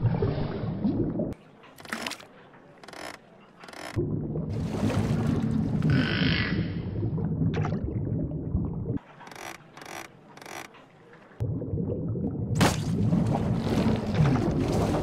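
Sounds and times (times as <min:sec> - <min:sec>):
toy fishing reel cranking: 0:02.8 - 0:04.0, 0:09.2 - 0:10.7
bubbling: 0:06.8 - 0:09.0.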